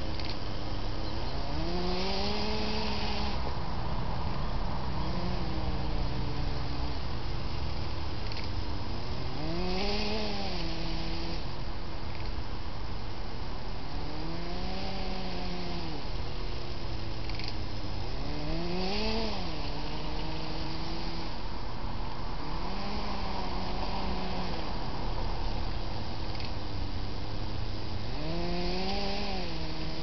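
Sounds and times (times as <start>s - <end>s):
electric motors whining: 0.0s - 3.5s, 5.0s - 12.4s, 13.9s - 21.4s, 22.6s - 24.8s
steady background noise: 0.0s - 30.0s.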